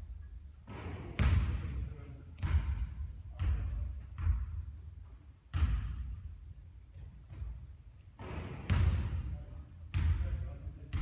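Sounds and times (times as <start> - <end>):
basketball bouncing on court: 2.4 - 4.6, 5.5 - 6.1, 8.7 - 9.2, 9.9 - 10.3.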